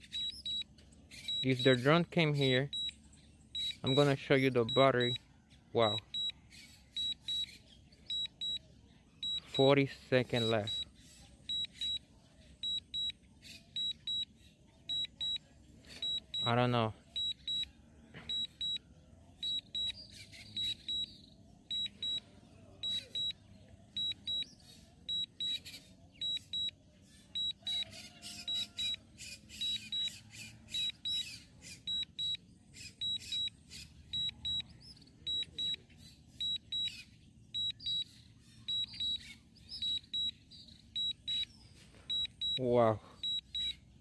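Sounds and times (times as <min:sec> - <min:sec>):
short high alarm beeps: 0:00.0 - 0:01.8, 0:02.4 - 0:03.0, 0:03.6 - 0:05.2, 0:05.8 - 0:06.4, 0:07.0 - 0:07.5, 0:08.1 - 0:08.6, 0:09.2 - 0:10.9, 0:11.5 - 0:13.2, 0:13.8 - 0:14.3, 0:14.9 - 0:18.8, 0:19.4 - 0:25.6, 0:26.2 - 0:26.8, 0:27.4 - 0:29.0, 0:31.9 - 0:32.4, 0:33.0 - 0:33.5, 0:34.1 - 0:34.7, 0:35.3 - 0:35.8, 0:36.4 - 0:37.0, 0:37.6 - 0:40.4, 0:41.0 - 0:43.8.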